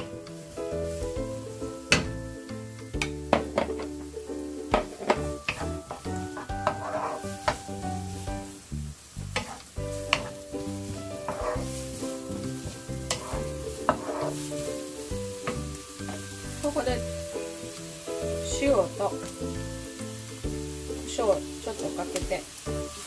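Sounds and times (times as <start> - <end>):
onion and garlic sizzling: 0.0 - 23.0
wooden spatula scraping pan: 3.2 - 8.6, 9.2 - 19.8.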